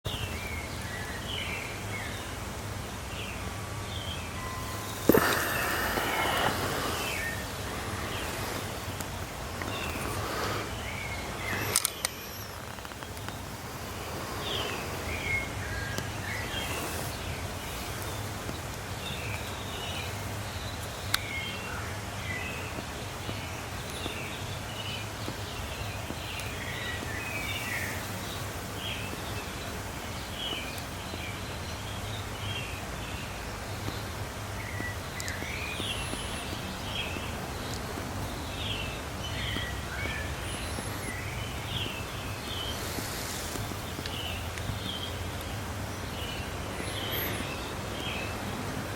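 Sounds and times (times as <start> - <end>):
small birds chirping: 0.0 - 48.9
sharp click: 11.4 - 13.4.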